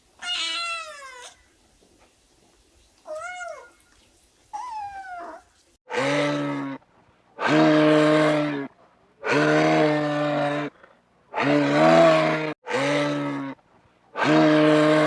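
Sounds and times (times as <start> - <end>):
kitten meowing: 0.2 - 1.4, 3.0 - 4.0, 4.6 - 5.4
cow mooing: 11.4 - 13.6.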